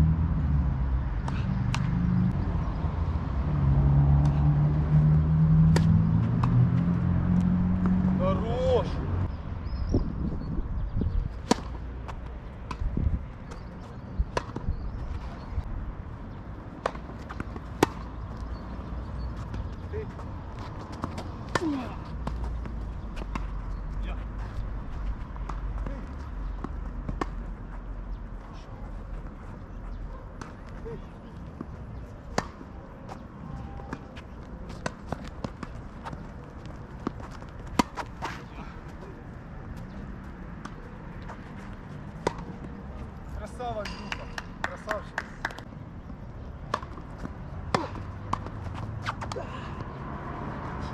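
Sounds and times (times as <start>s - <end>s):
tennis ball struck by racket: 5.6s - 6.6s, 11.4s - 11.8s, 14.3s - 14.7s, 16.8s - 18.2s, 32.3s - 32.6s, 37.0s - 38.5s, 42.2s - 42.8s, 46.7s - 49.4s
tennis ball hitting rackets: 5.6s - 6.9s, 11.4s - 15.5s, 16.5s - 23.8s, 25.4s - 27.6s, 31.5s - 33.2s, 33.8s - 39.1s, 39.7s - 43.0s, 43.8s - 50.0s
footsteps on court: 33.0s - 39.1s.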